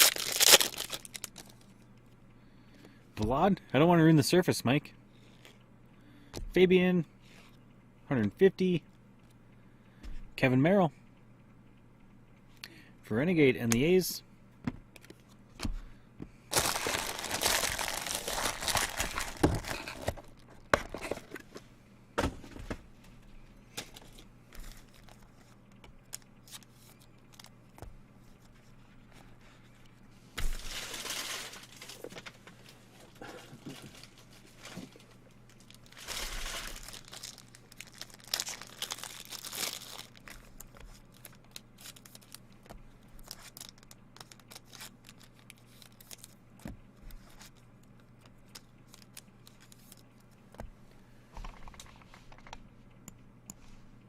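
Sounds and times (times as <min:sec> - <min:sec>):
plastic wrapping crinkling and tearing: 0:00.0 - 0:01.7, 0:16.5 - 0:20.6, 0:30.4 - 0:32.8, 0:33.8 - 0:46.4, 0:48.5 - 0:50.0.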